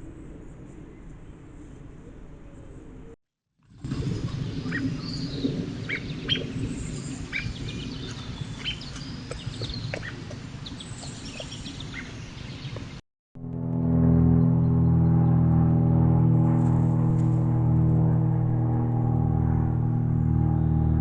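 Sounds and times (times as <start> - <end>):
low outdoor rumble: 0.0 - 21.0
birds chirping: 3.9 - 13.0.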